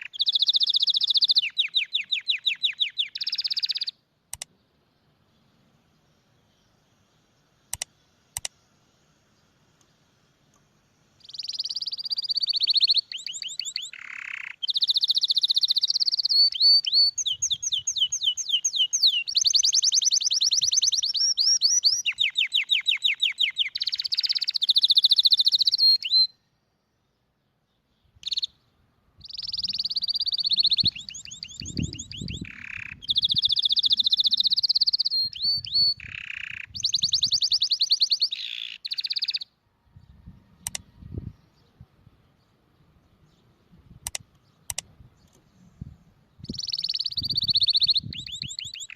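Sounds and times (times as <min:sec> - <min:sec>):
canary singing trills: 0:00.0 - 0:04.0, 0:11.2 - 0:26.5, 0:27.8 - 0:43.5, 0:46.3 - 0:48.9
single bird chirp: 0:09.4 - 0:26.4, 0:27.7 - 0:41.8, 0:46.4 - 0:48.9.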